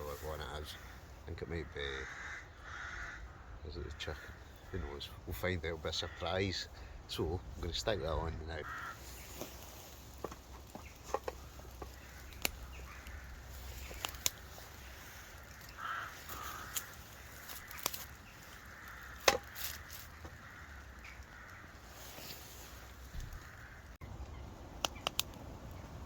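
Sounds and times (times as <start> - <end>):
cooking gear clicks and knocks: 9.4 - 13.2, 18.8 - 20.4.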